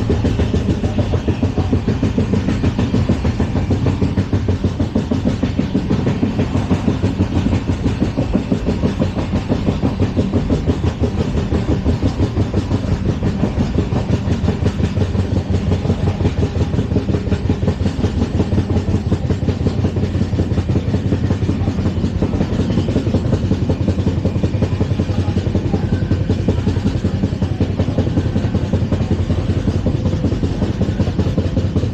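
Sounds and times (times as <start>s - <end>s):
train wheels rumbling on rails: 0.0s - 31.9s.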